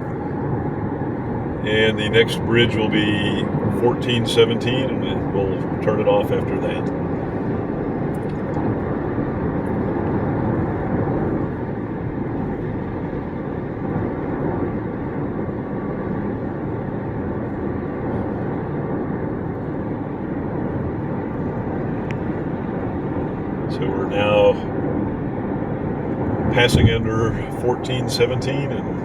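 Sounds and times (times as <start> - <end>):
car engine low hum: 0.0 - 29.0.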